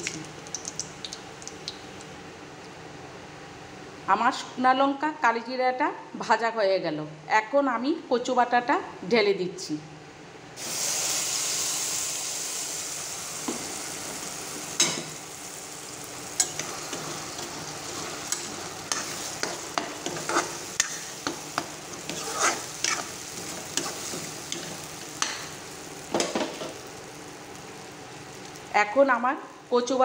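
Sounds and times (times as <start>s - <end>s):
paste sizzling in hot oil: 10.6s - 28.7s
metal spoon scraping a pan: 16.4s - 25.4s.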